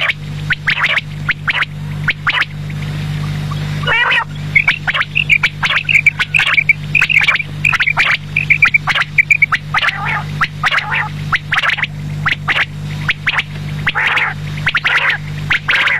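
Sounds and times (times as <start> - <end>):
quail calling: 0.0 - 2.5, 3.8 - 15.9
steady low hum: 0.0 - 15.9.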